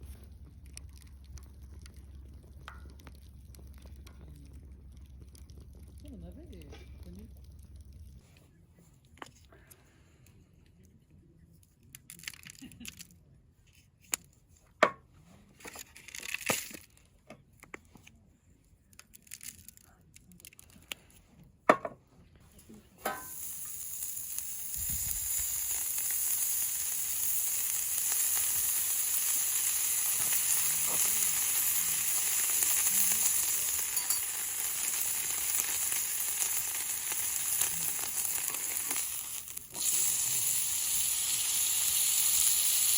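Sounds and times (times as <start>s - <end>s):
food sizzling in a pan: 23.1s - 42.9s.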